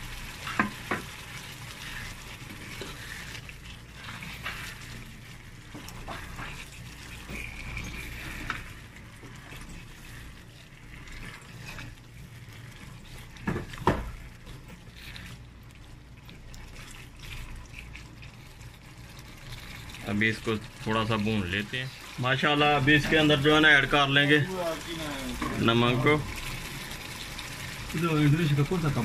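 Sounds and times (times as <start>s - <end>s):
food sizzling in a wok: 0.0s - 15.2s, 21.2s - 29.0s.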